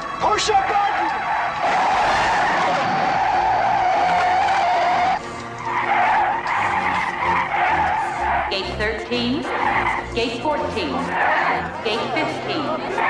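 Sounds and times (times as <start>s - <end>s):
tyre squeal screech: 1.1s - 8.5s, 9.5s - 10.4s.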